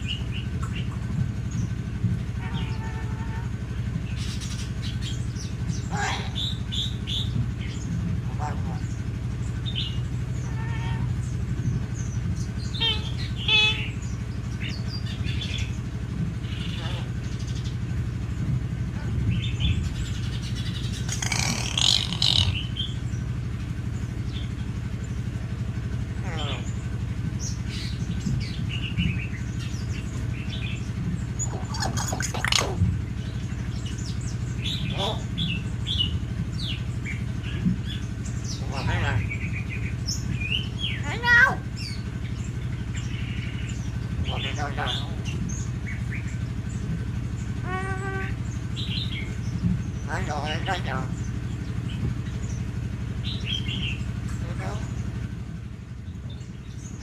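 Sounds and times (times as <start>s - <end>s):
myna birds chirping and whistling: 0.0s - 2.8s, 3.9s - 18.4s, 19.1s - 25.3s, 26.1s - 57.0s
steady low hum: 0.0s - 57.0s
bird whistled calls and chirps: 19.4s - 23.0s, 31.4s - 32.8s.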